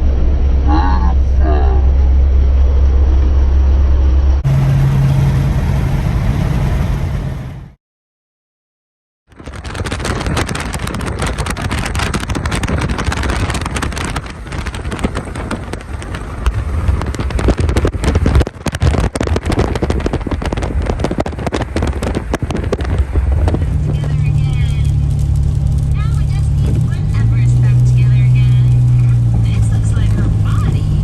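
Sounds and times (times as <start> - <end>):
low engine drone: 0.0 - 7.8, 9.4 - 31.0
road and wind noise: 0.0 - 7.8, 9.3 - 31.0
small crackles: 9.3 - 29.6.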